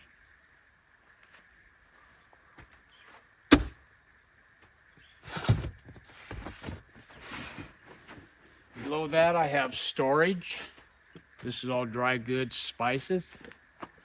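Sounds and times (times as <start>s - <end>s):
door latch click: 3.5s - 3.7s
scuffing and knocking handling: 3.5s - 3.7s.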